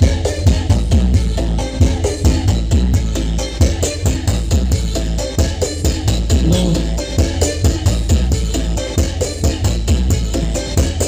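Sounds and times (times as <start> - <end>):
loud dance music with heavy bass: 5.6 - 7.3.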